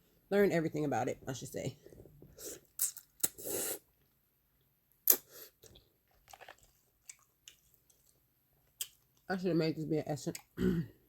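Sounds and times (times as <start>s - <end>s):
small mouth clicks: 5.0s - 5.3s
chewing noodles: 5.1s - 9.3s.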